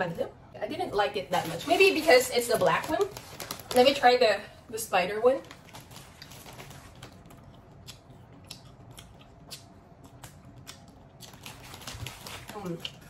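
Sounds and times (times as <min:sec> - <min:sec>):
chewing licorice candy: 0:05.5 - 0:13.0.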